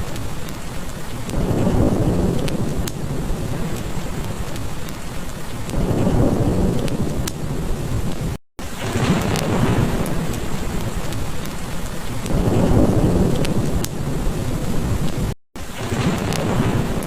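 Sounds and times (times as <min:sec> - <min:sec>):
crackling fireplace: 0:00.0 - 0:17.0
heavy rain: 0:00.0 - 0:17.0
low thunder rumbling: 0:00.0 - 0:17.0.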